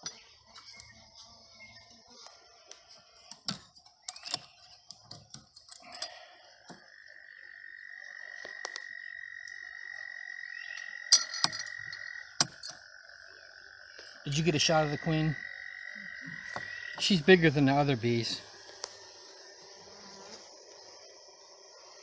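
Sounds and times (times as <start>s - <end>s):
frog trilling: 6.0s - 17.1s.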